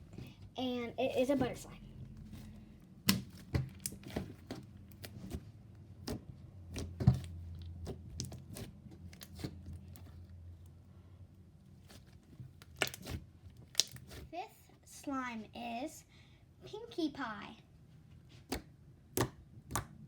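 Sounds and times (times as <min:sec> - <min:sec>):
hands squishing slime: 0:01.0 - 0:10.3, 0:11.8 - 0:14.3, 0:18.3 - 0:20.0.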